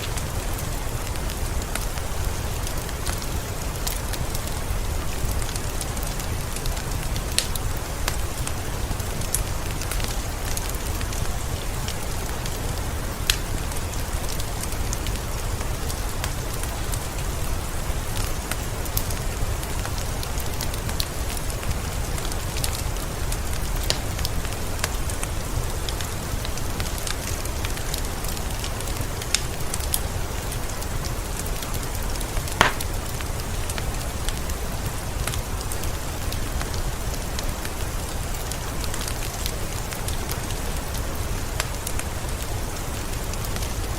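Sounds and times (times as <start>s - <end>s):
heavy rain falling: 0.0s - 43.9s
water drips landing close by: 32.6s - 33.2s.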